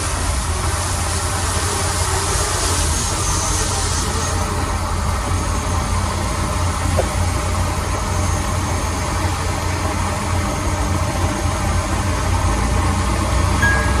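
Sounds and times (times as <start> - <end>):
short high tone: 13.6 - 14.0.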